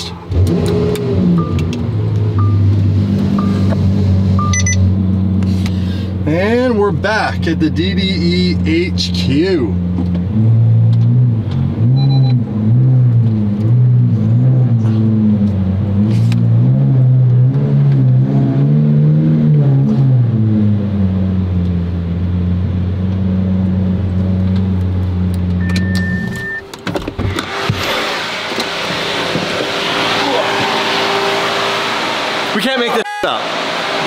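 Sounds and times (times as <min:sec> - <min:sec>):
car engine running: 0:00.0 - 0:18.2, 0:19.6 - 0:34.0
short high beep: 0:04.4 - 0:04.8, 0:12.0 - 0:12.4, 0:25.6 - 0:26.6.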